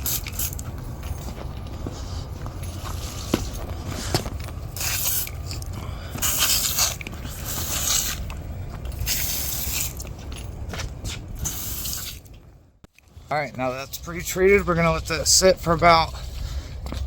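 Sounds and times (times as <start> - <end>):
low hum: 0.0 - 17.0
spray hissing: 4.8 - 5.4, 6.2 - 8.2, 9.0 - 10.0, 11.4 - 12.2.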